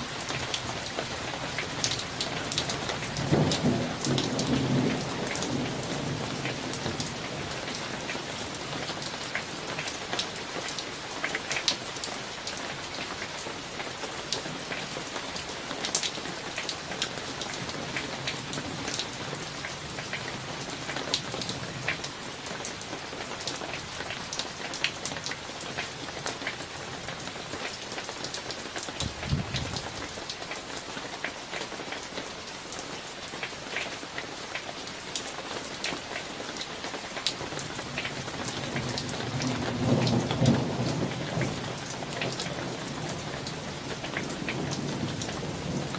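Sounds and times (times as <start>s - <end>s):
rain drops ticking on hard surface: 0.0s - 45.9s
thunder rumble: 29.0s - 30.1s.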